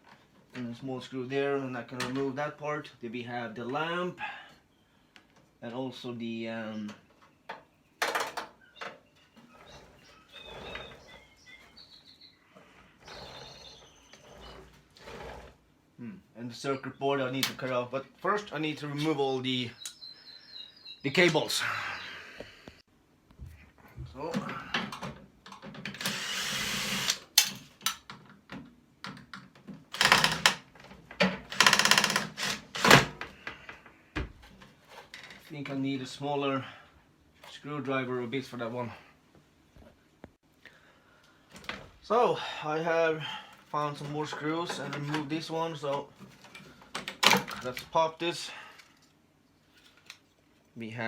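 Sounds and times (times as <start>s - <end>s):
squeaks of plastic and metal: 8.2s - 15.6s, 31.4s - 33.1s
scraping rasp: 12.6s - 15.6s
drill bit rattling in screw: 25.9s - 27.5s, 31.5s - 33.1s
cordless drill running: 26.0s - 27.2s
clicks of parts: 27.0s - 33.4s.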